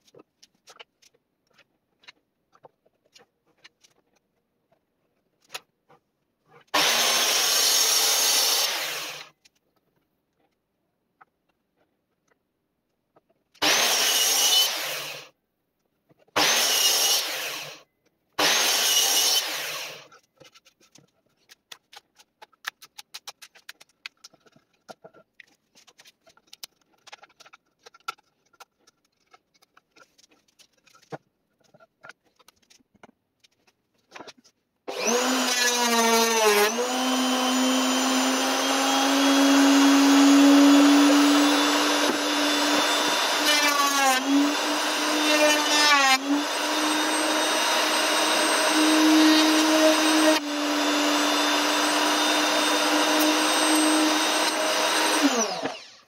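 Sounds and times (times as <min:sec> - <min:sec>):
wood router spinning: 0:06.6 - 0:09.3, 0:13.6 - 0:15.3, 0:16.4 - 0:17.8, 0:18.4 - 0:21.3, 0:34.9 - 0:56.0.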